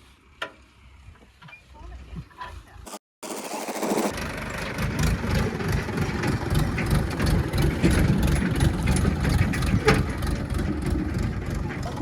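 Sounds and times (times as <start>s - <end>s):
diesel engine running: 4.1s - 12.0s.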